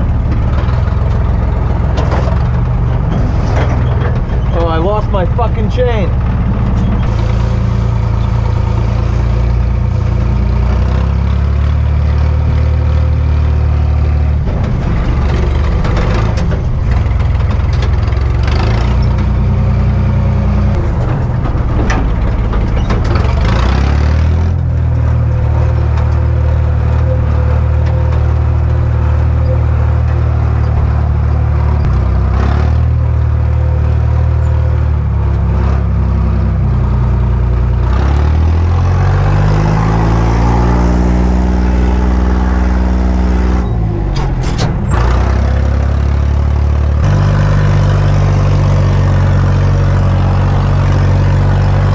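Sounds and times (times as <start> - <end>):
diesel truck engine running: 0.0 - 51.9
engine rattling: 0.0 - 51.9.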